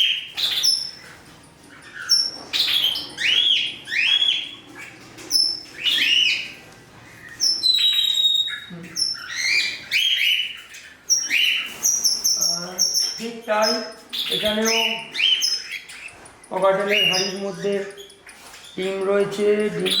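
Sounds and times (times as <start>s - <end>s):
cockatiels chirping and calling: 0.0s - 20.0s.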